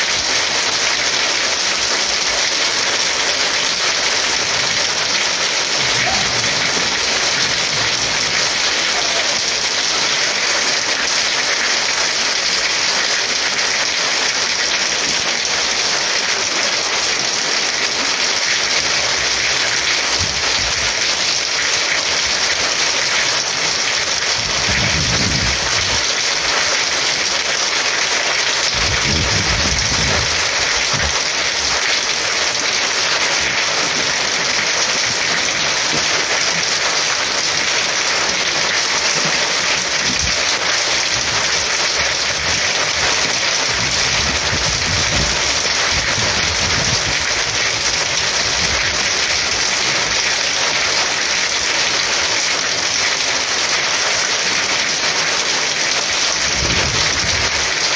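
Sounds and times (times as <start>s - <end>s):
heavy rain pouring: 0.0s - 57.9s.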